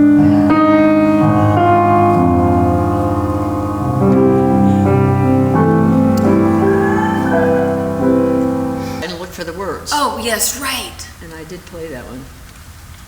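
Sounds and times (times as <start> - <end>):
solo piano chords: 0.0 - 10.0.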